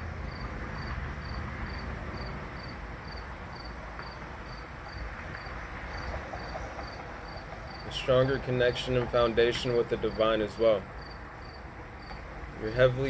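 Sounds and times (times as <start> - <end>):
cricket chirping: 0.3 - 7.8, 11.0 - 12.2.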